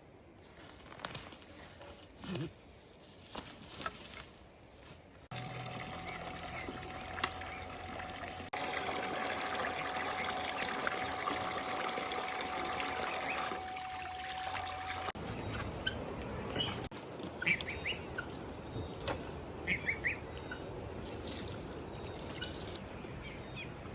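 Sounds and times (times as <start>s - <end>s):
water trickling: 5.3s - 15.2s, 20.9s - 22.8s.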